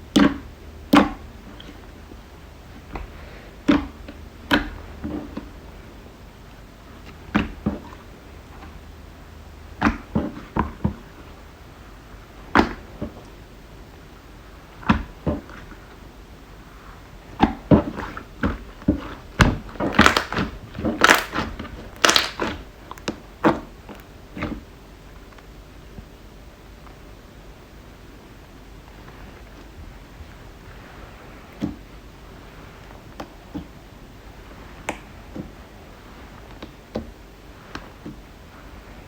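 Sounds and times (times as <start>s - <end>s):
slime clicks and pops: 21.0s - 21.4s, 22.0s - 22.5s.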